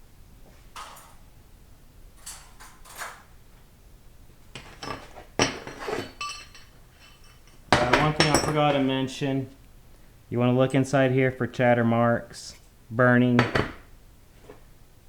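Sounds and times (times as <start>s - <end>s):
metal parts clinking on workbench: 4.6s - 8.9s.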